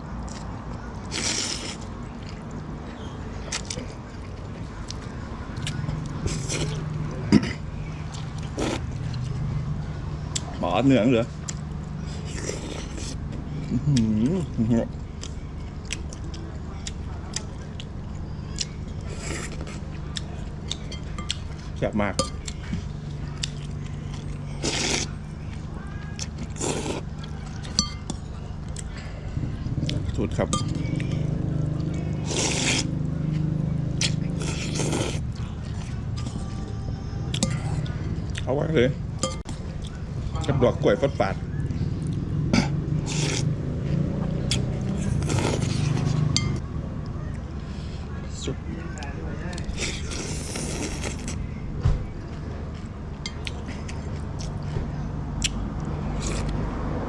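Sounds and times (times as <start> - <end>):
person chewing with crisp crunches: 0.2 - 2.6, 22.4 - 36.7, 41.6 - 47.5, 49.5 - 51.5, 52.2 - 56.6
slurping noodle soup: 1.0 - 1.9, 8.4 - 9.2, 24.5 - 25.2, 26.4 - 27.1, 32.0 - 33.0, 34.0 - 35.3, 42.6 - 43.5, 44.5 - 46.5, 49.6 - 51.4
spoon clinking against bowl: 27.7 - 28.2, 30.5 - 31.3.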